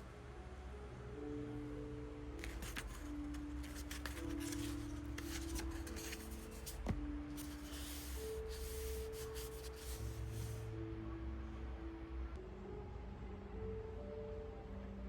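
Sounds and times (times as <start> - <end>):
soft instrumental music: 0.0 - 15.0
rubbing and clicking of handling: 2.4 - 10.6.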